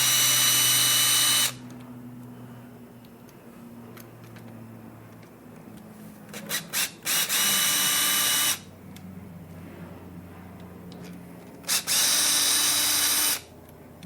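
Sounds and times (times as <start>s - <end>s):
cordless drill spinning: 0.0s - 1.6s, 6.5s - 8.6s, 11.7s - 13.5s.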